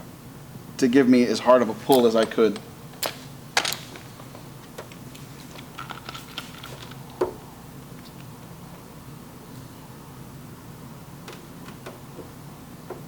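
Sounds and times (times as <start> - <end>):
dent-repair tools clicking and knocking: 1.8 - 7.4.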